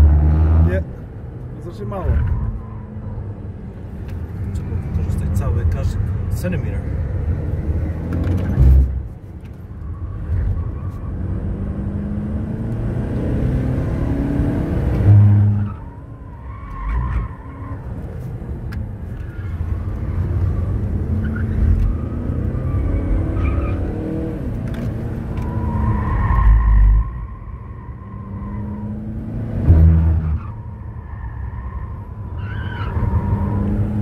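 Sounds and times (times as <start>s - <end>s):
car engine accelerating: 10.2s - 15.9s.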